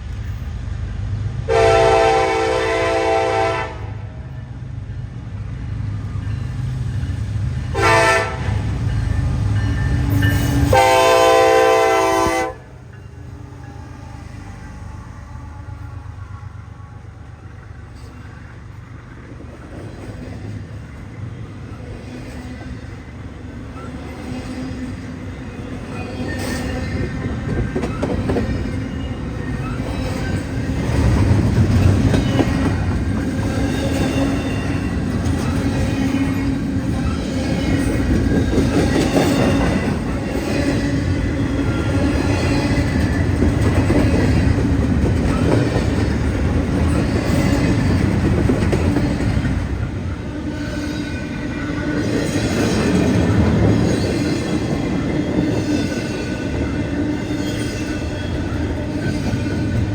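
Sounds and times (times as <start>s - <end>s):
train rumble: 0.0s - 59.9s
wheels clattering on rails: 17.9s - 50.0s, 50.8s - 59.9s.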